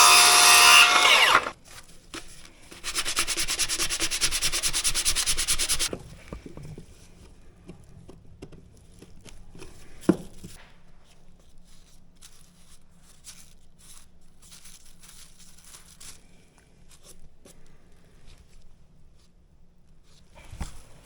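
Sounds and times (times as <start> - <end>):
rustling and crinkling handling noise: 1.6 - 3.1, 5.8 - 21.0.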